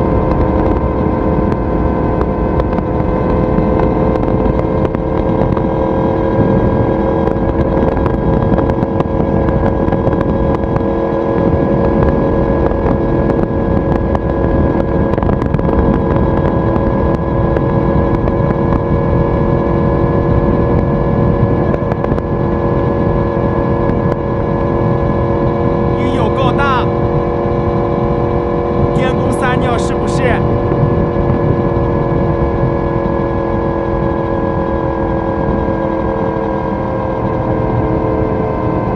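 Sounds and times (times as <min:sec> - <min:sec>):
motorcycle engine cruising: 0:00.0 - 0:38.9
wind noise: 0:00.0 - 0:38.9.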